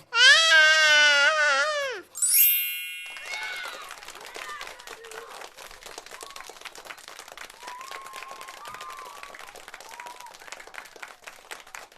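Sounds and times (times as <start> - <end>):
crowd applauding: 2.2 - 11.9.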